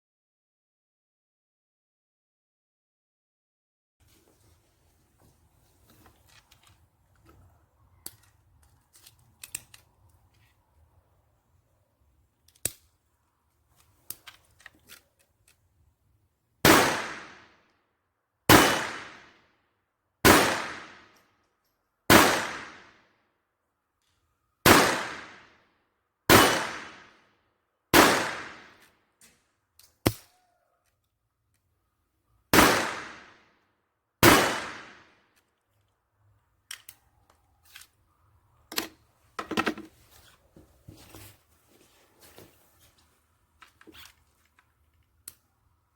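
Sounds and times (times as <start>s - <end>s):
pistol handling clicks and rattles: 5.9s - 10.6s, 12.4s - 12.9s, 13.8s - 15.7s, 36.6s - 38.0s, 43.6s - 45.5s
pistol shots: 16.6s - 17.4s, 18.5s - 19.3s, 20.2s - 21.1s, 22.1s - 22.9s, 24.6s - 25.5s, 26.3s - 27.1s, 27.9s - 28.8s, 32.5s - 33.4s, 34.2s - 35.1s.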